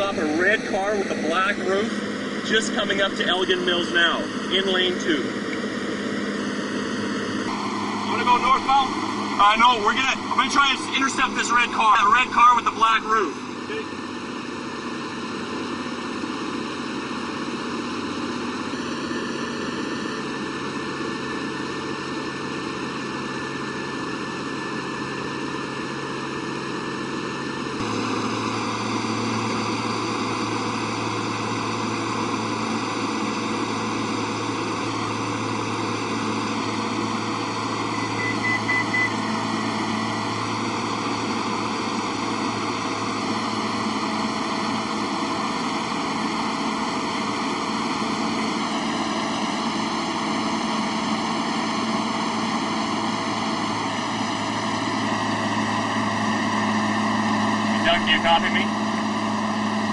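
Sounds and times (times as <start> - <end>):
aircraft engine and propeller droning: 0.0 - 59.9
short beeps: 37.8 - 40.2.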